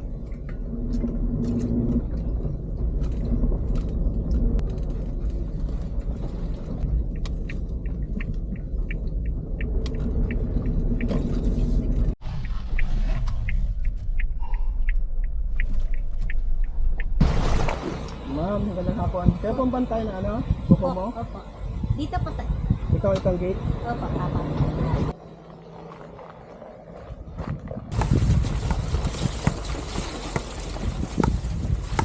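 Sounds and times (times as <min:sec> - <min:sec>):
car driving rumble: 0:00.0 - 0:32.0
light regular ticking: 0:06.7 - 0:11.1, 0:11.8 - 0:17.2.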